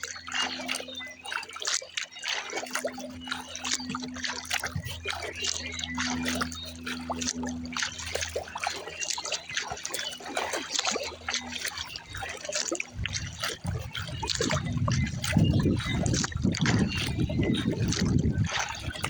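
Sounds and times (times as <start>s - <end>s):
water dripping and splashing: 0.0s - 19.0s
low rumble: 12.8s - 19.0s.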